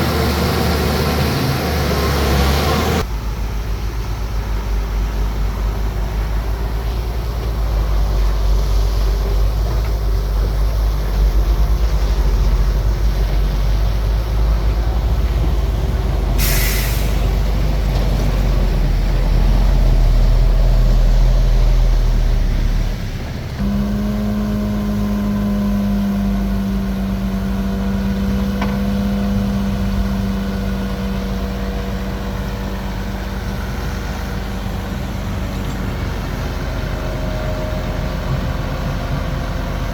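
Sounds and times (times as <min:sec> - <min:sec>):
bulldozer diesel engine rumbling: 0:00.0 - 0:39.9
air release hiss: 0:16.4 - 0:17.7.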